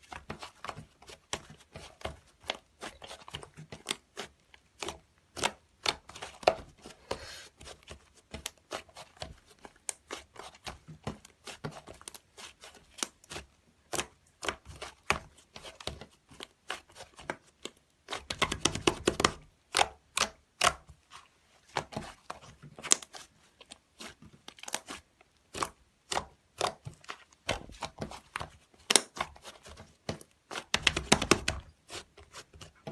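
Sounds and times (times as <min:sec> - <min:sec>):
crackling and tearing handling noises: 0:22.0 - 0:32.9.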